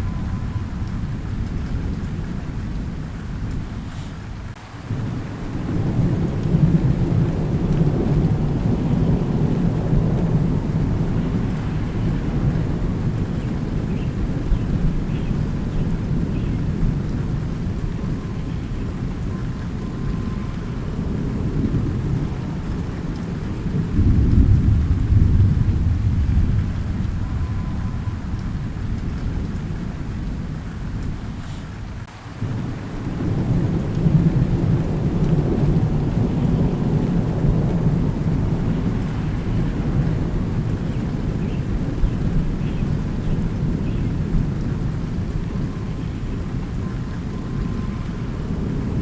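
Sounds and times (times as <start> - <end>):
rolling thunder: 0.0 - 49.0
steady rain: 0.0 - 49.0.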